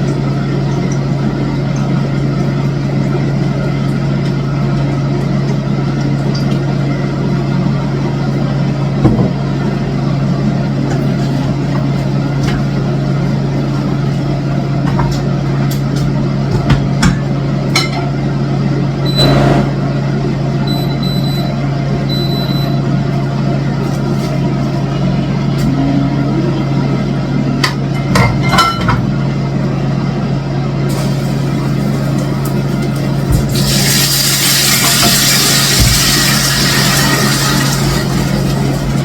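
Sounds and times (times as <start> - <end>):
low engine-like hum: 0.0 - 33.6
short high-pitched beeps: 19.0 - 19.5, 20.6 - 21.5, 22.1 - 22.8.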